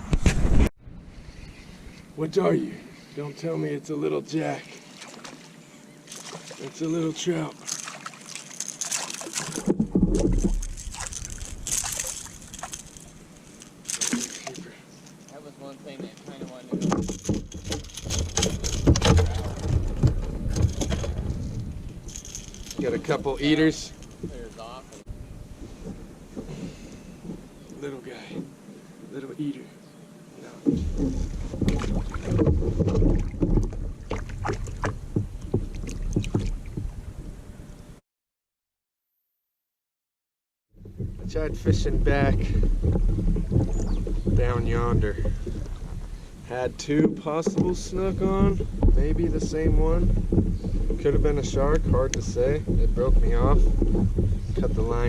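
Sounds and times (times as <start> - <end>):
handling knocks and rustles: 6.1 - 25.0, 30.6 - 37.0, 40.8 - 55.0
wind rumble: 9.5 - 14.6, 16.8 - 27.6, 47.7 - 55.0.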